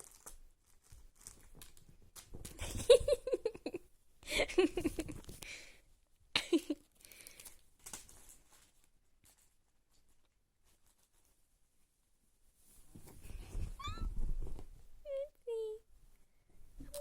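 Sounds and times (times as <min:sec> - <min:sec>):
paper tissues rustling: 0:00.0 - 0:02.9.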